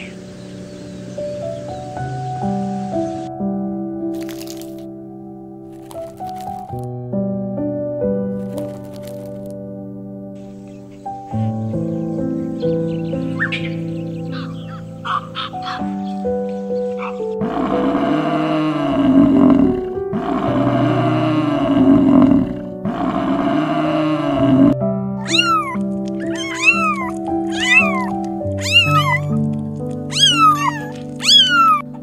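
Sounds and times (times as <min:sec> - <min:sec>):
soft piano music: 0:00.0 - 0:32.0
kittens meowing: 0:13.4 - 0:16.2, 0:25.2 - 0:32.0
water buffalo mooing: 0:17.0 - 0:25.6, 0:26.2 - 0:29.4.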